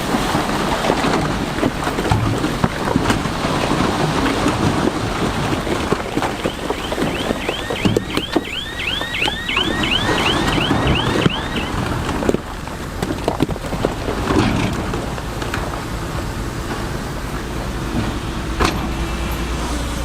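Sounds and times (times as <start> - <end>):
diesel engine rumble: 0.0 - 20.0
rhythmic metallic track squeal: 6.2 - 11.9.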